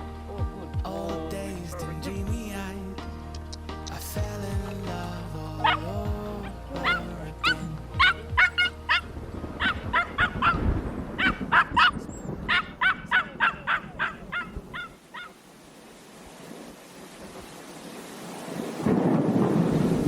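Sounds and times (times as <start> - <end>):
birds calling: 5.6 - 15.4.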